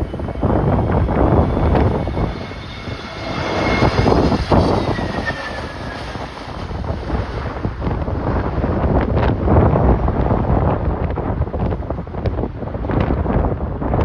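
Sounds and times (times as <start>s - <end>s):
jet engines whining: 0.0s - 10.4s
storm wind buffeting microphone: 0.0s - 14.0s.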